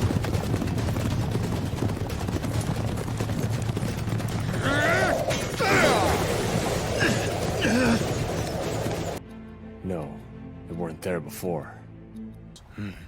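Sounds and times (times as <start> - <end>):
horses galloping: 0.0 - 9.2.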